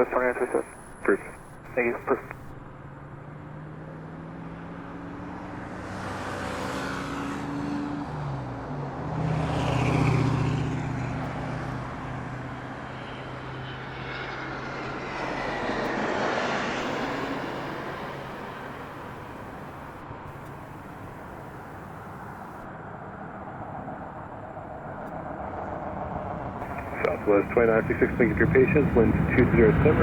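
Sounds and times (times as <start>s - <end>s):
jet airliner engines passing: 0.0s - 2.4s, 9.3s - 30.0s.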